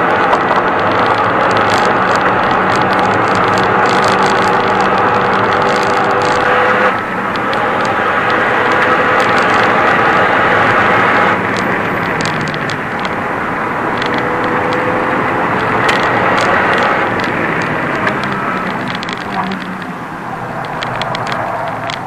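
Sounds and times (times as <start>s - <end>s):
car engine at high revs: 0.0s - 22.0s
road and wind noise: 0.0s - 22.0s
short clicks and rattles: 0.0s - 22.0s.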